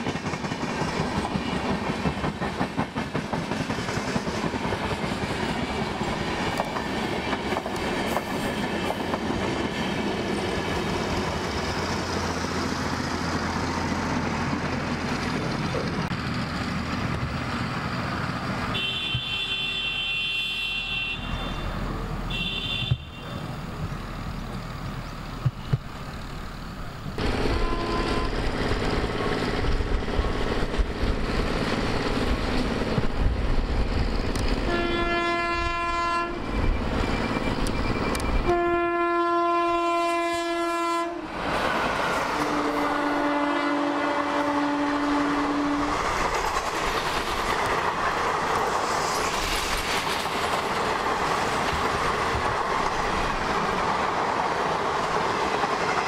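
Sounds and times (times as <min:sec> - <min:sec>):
train wheel clatter: 0:00.0 - 0:19.3, 0:45.4 - 0:56.0
train horn blasts: 0:18.7 - 0:23.5, 0:27.4 - 0:28.4, 0:34.6 - 0:36.5, 0:38.4 - 0:41.3, 0:42.4 - 0:46.0.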